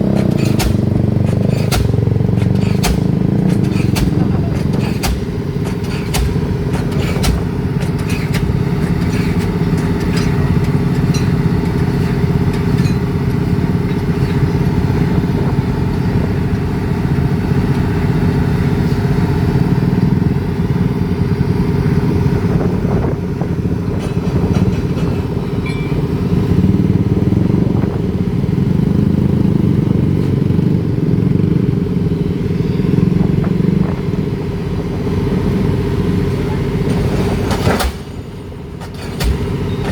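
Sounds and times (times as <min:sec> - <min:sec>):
heavy diesel engine running: 0:00.0 - 0:39.9
light metallic clanks: 0:00.1 - 0:14.6, 0:23.9 - 0:26.1.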